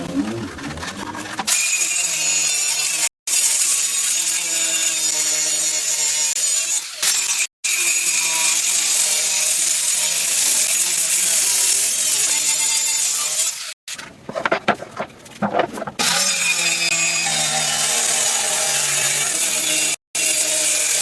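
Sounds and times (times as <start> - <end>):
knocks and scrapes: 0.0 - 1.6, 13.9 - 16.9
power tool cutting wood: 16.0 - 21.0.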